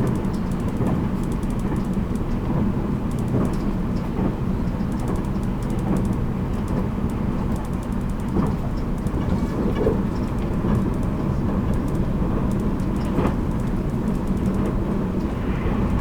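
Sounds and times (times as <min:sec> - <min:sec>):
electric train rumble: 0:00.0 - 0:16.0.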